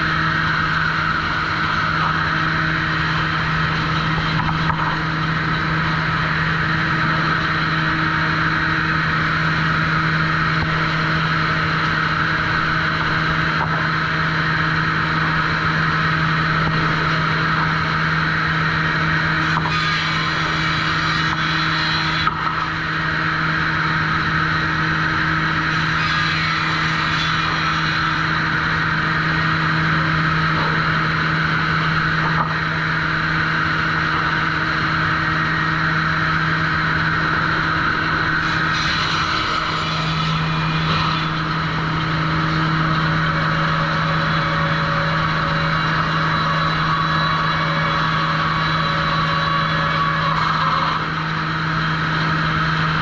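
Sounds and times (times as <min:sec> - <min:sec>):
sawmill machinery running: 0:00.0 - 0:53.0.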